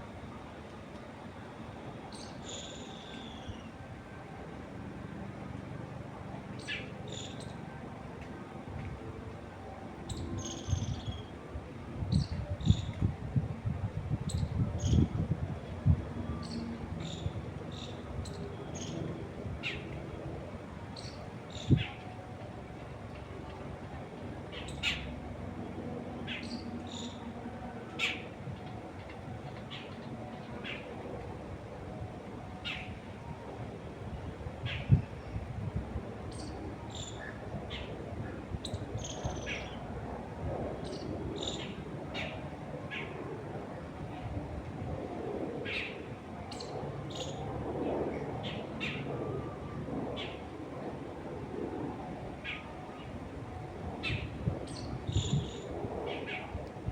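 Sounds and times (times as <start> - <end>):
wind buffeting microphone: 10.0 - 24.4, 31.0 - 56.9.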